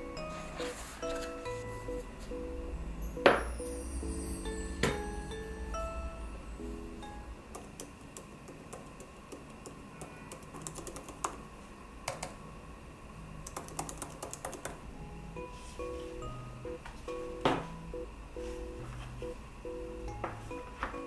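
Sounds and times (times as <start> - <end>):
soft background music: 0.0 - 8.1, 14.8 - 21.0
keyboard key clicks: 7.6 - 11.4, 13.5 - 14.8.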